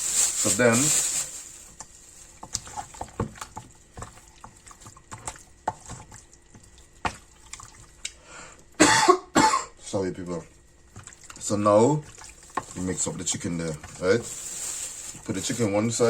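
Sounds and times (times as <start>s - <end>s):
wet squelching of chicken in batter: 1.6s - 8.7s, 10.2s - 15.7s
person coughing: 8.8s - 9.8s.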